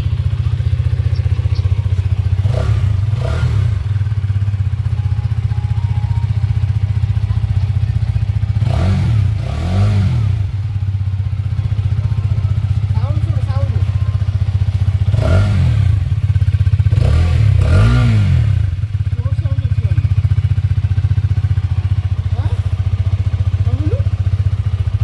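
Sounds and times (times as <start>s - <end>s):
motorcycle engine idling: 0.0s - 25.0s
motorcycle throttle blips: 0.0s - 25.0s.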